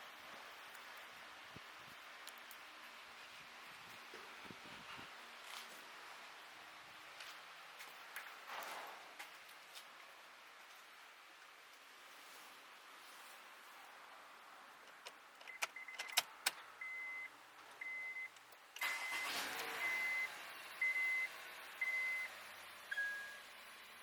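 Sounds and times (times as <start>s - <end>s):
sharp clicks: 14.9s - 16.6s
high electronic beep: 18.9s - 22.3s, 22.9s - 23.4s
lower-pitched beep: 18.9s - 22.3s, 22.9s - 23.4s.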